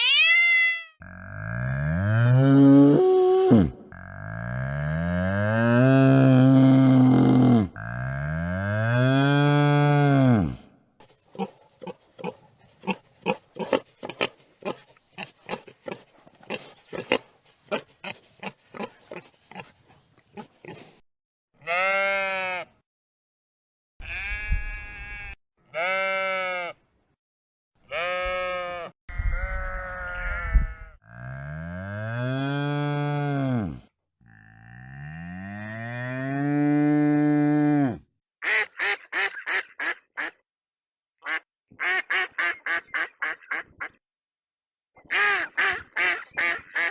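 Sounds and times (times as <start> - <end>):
mooing call: 1.0 - 10.6.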